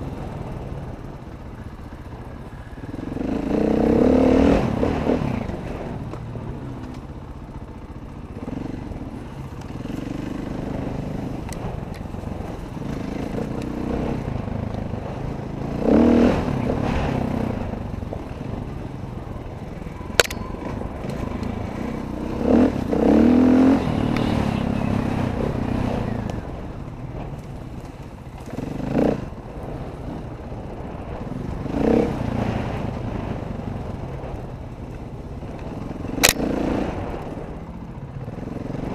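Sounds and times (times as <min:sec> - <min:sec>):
dirt bike engine revving: 0:02.9 - 0:06.0, 0:12.4 - 0:26.6, 0:28.4 - 0:29.8, 0:31.6 - 0:33.4.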